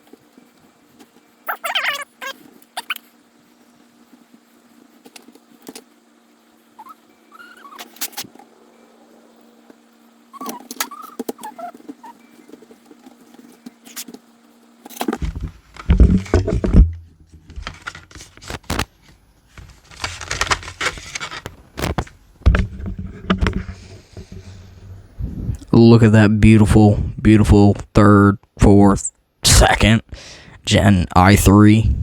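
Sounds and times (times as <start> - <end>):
handling rustles: 11.2 - 25.2
laptop plastic clicks and rattles: 17.4 - 18.9, 19.6 - 23.9.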